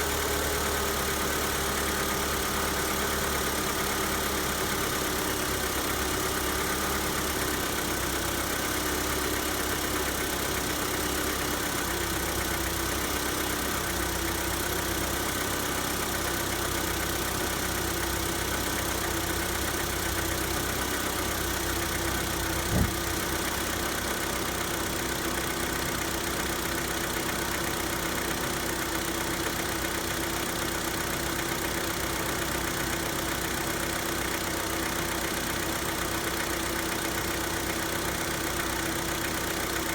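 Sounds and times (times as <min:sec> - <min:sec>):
car engine idling with knock: 0:00.0 - 0:39.9
brief thump: 0:22.6 - 0:23.2.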